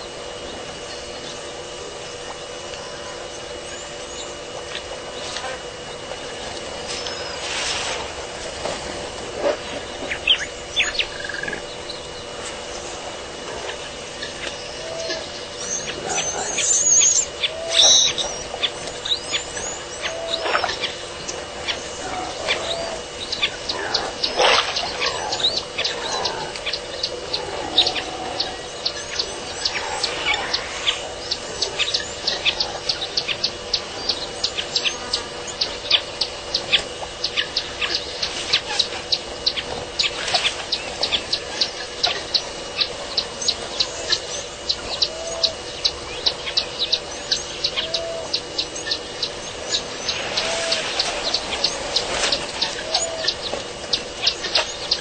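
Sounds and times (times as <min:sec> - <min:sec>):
small birds chirping: 0:00.2 - 0:07.5, 0:09.4 - 0:55.0
bird sweeping calls: 0:06.8 - 0:08.6, 0:13.6 - 0:55.0.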